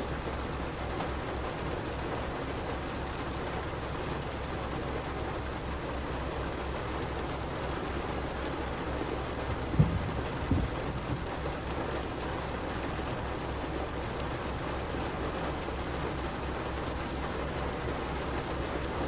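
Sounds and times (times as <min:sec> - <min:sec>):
heavy rain on car roof: 0:00.0 - 0:19.0
short low thuds: 0:09.6 - 0:11.9.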